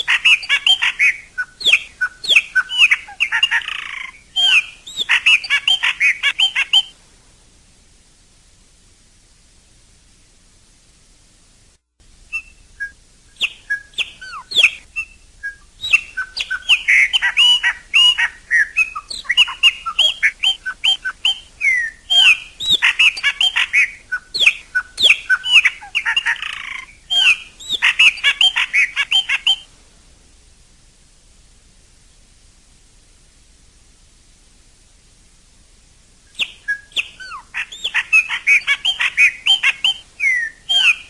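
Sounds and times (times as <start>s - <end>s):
blackbird singing chirps and whistles: 0.0s - 6.9s, 12.3s - 29.7s, 36.4s - 41.0s
faint steady hiss: 0.0s - 41.0s
harsh bird rasp: 12.3s - 29.6s.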